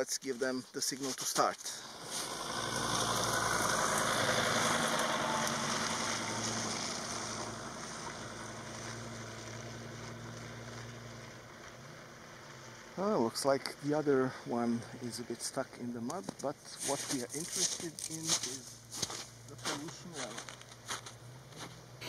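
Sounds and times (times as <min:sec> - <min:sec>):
vehicle driving through mud: 0:01.8 - 0:14.1, 0:16.9 - 0:22.0.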